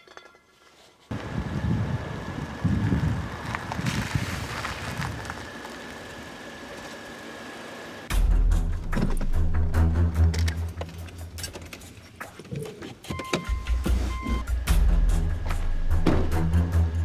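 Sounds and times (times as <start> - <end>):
car engine running: 1.1 - 11.4
music with heavy bass: 8.1 - 11.4, 13.5 - 17.0.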